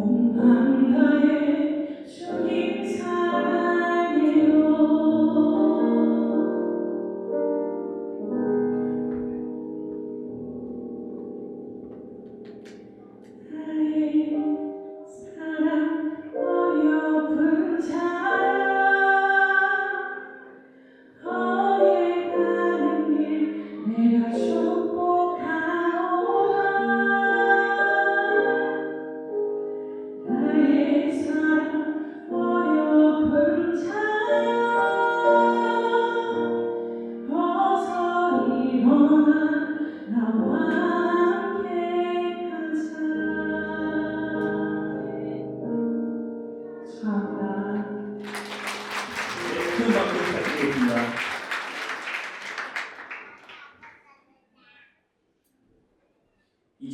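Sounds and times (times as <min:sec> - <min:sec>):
woman singing slow song: 0:00.0 - 0:06.7, 0:13.4 - 0:20.6, 0:21.2 - 0:29.2, 0:30.2 - 0:45.6, 0:46.7 - 0:48.2.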